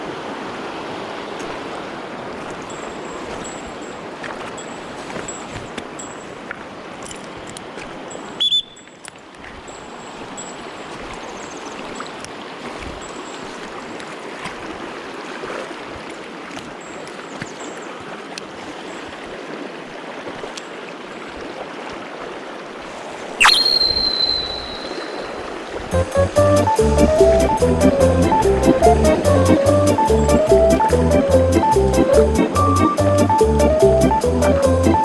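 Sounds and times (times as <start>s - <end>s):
mountain stream running: 0.0s - 25.9s
brief loud burst: 23.4s - 25.4s
loud ringing tone: 23.4s - 25.4s.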